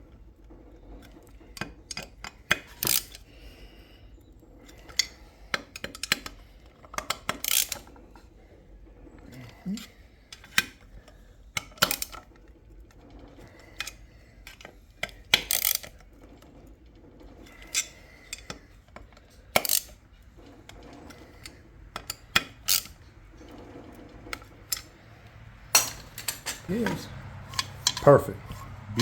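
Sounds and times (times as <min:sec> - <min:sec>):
metal tools clicking and clinking: 0:07.0 - 0:07.8, 0:15.4 - 0:15.9, 0:19.5 - 0:20.0, 0:21.4 - 0:23.0, 0:25.7 - 0:29.0.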